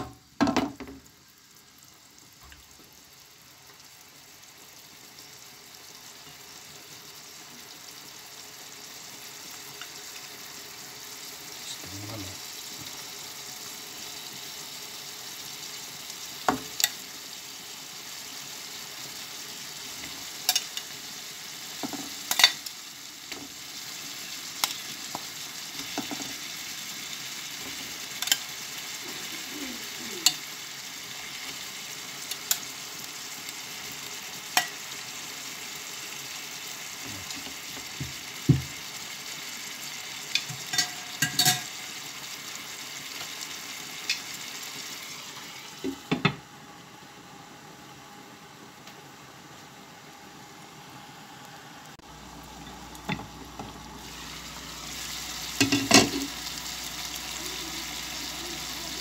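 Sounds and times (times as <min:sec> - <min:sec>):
chicken sizzling in a pot: 0:00.0 - 0:59.0
metal tongs clicking on cookware: 0:20.5 - 0:20.8, 0:22.3 - 0:22.6.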